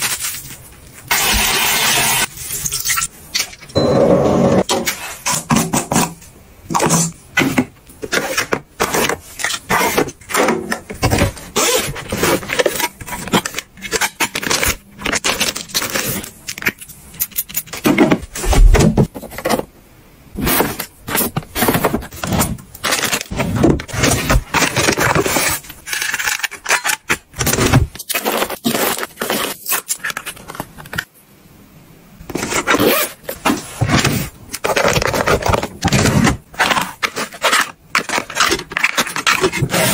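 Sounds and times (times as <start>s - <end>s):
plastic packaging crinkling: 0.0s - 1.4s, 8.0s - 19.7s, 20.4s - 31.1s, 32.3s - 39.9s.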